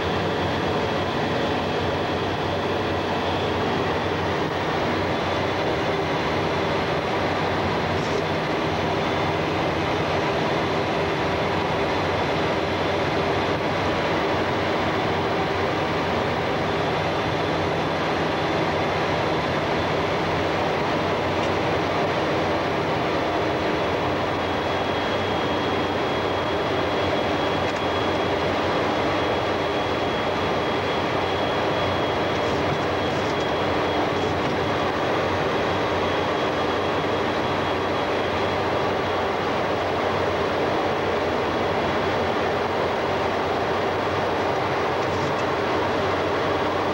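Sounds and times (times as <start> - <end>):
aircraft cabin engine and airflow noise: 0.0 - 46.9
thin high whine: 14.4 - 46.9.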